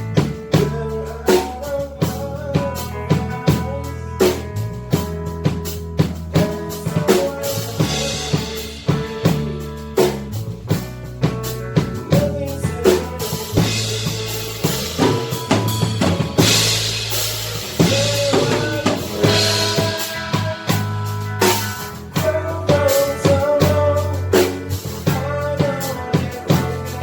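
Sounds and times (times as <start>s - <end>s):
bass guitar notes: 0.0s - 27.0s
drum kit beat: 0.0s - 27.0s
cymbal crashes: 14.3s - 18.3s.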